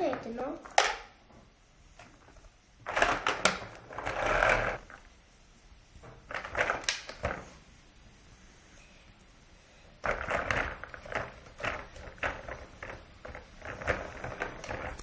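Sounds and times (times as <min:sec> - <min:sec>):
plastic toys rustling and knocking: 0:00.0 - 0:05.2, 0:06.0 - 0:07.7, 0:10.0 - 0:15.0.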